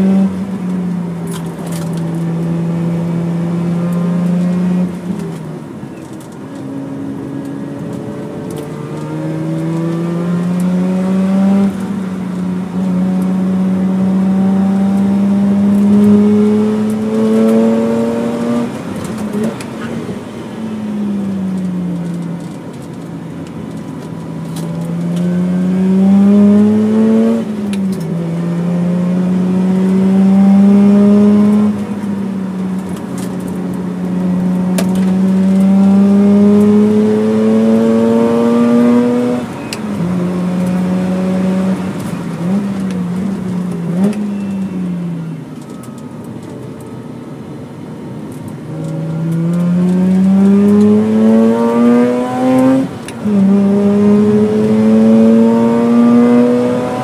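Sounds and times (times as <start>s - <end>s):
rotary engine revving: 24.5s - 32.1s, 34.1s - 44.4s, 48.8s - 57.0s.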